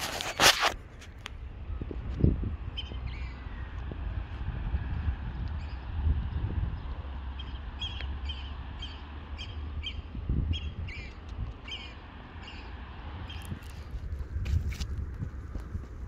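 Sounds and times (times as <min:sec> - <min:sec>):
wind on microphone: 0:00.0 - 0:07.8, 0:09.8 - 0:11.8, 0:13.1 - 0:16.0.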